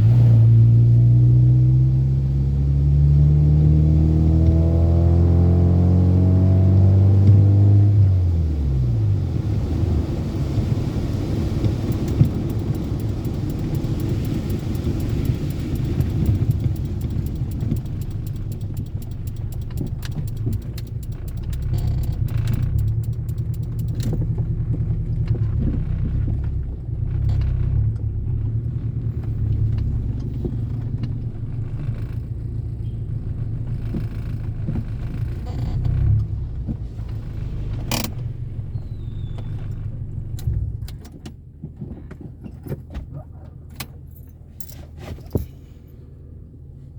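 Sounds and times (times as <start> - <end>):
car engine running: 0.0 - 46.9
road noise: 0.0 - 46.9
fast ticks: 11.6 - 24.3.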